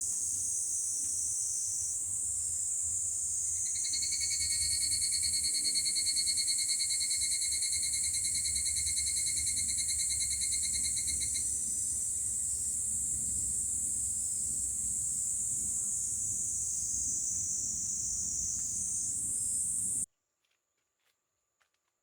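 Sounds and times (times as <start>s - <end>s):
steady high hiss: 11.0s - 20.1s.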